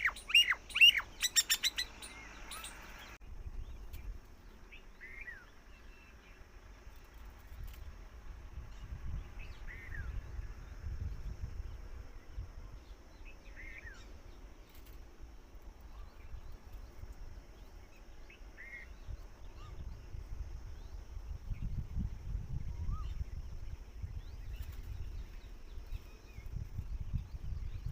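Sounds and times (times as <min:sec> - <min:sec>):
bird chirping: 0:00.0 - 0:07.9
steady low rumble: 0:01.9 - 0:27.9.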